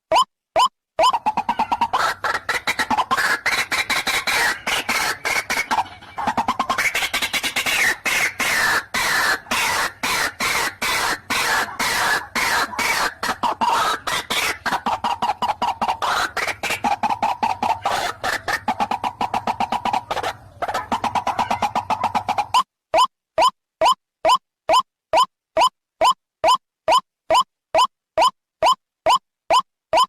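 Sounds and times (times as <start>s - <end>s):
waterhen harsh croaking calls: 1.0s - 22.6s.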